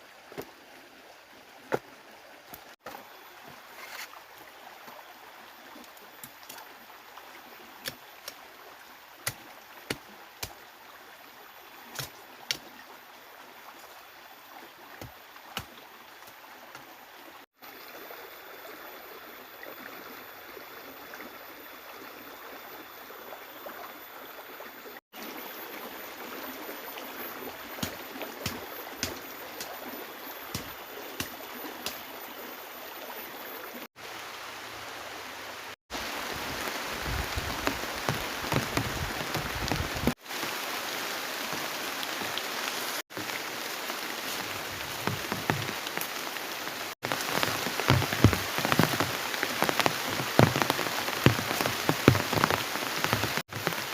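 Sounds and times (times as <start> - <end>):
flowing river water: 0.0 - 53.9
heavy rain: 34.0 - 53.9.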